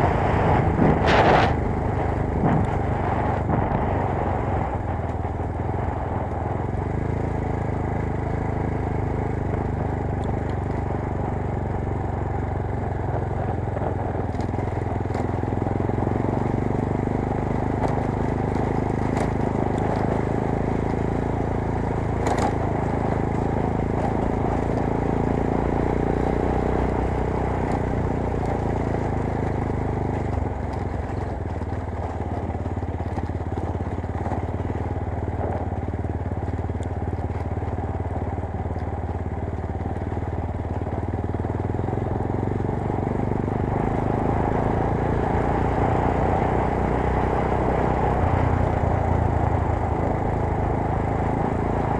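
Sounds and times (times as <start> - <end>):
wind noise on microphone: 0.0 - 6.7
motorcycle engine running: 0.0 - 51.9.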